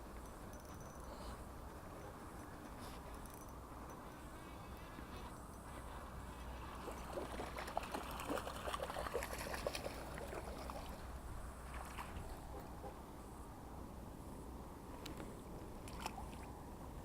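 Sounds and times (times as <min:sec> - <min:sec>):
water splashing and dribbling: 0:06.3 - 0:12.4, 0:15.8 - 0:16.6.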